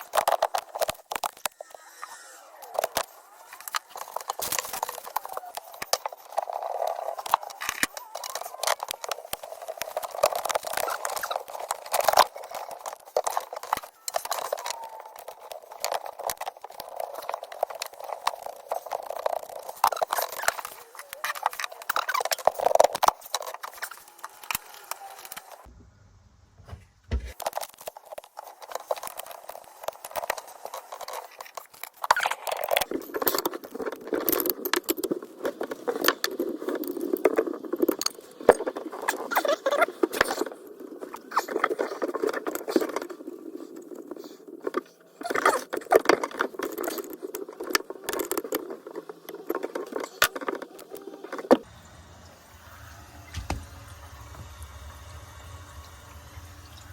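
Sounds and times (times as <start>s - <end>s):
hand tools and metal fittings rattling: 0.0s - 25.7s, 27.1s - 52.0s
scraping and rustling: 0.0s - 25.7s.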